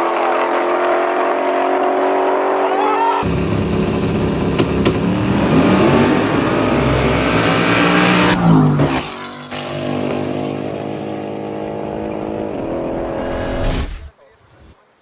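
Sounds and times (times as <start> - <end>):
car engine accelerating: 0.0 - 13.6
engine backfire bursts: 3.2 - 11.5.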